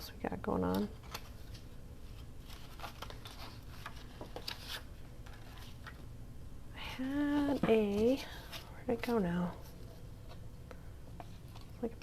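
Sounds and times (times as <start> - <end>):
paper scraps rustling: 1.0 - 6.0.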